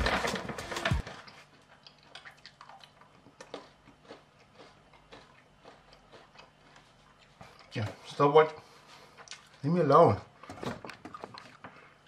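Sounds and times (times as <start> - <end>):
faint chewing with mouth clicks: 1.2 - 8.2, 8.8 - 9.7, 10.9 - 12.0.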